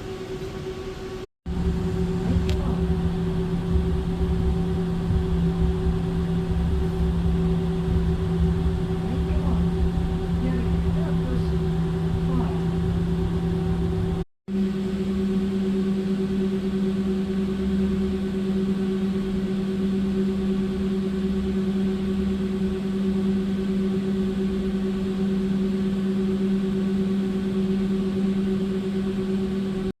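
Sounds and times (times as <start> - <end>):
tram electric hum: 0.0 - 29.6
low rumble: 1.5 - 14.2.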